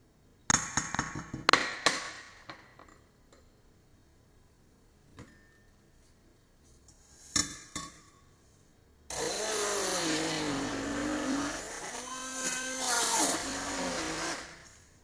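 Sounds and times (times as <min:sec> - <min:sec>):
kitchen appliance motor running: 0:09.1 - 0:14.6.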